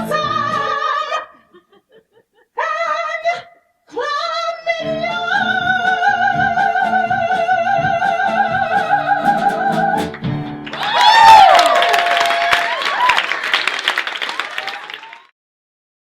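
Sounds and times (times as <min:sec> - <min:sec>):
audience cheering and whistling: 0:10.7 - 0:15.3.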